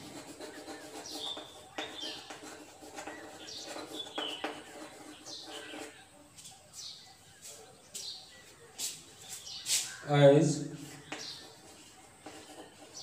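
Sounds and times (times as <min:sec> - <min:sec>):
chalk writing on a blackboard: 0:00.0 - 0:10.1, 0:10.7 - 0:13.0
small birds chirping: 0:00.0 - 0:13.0.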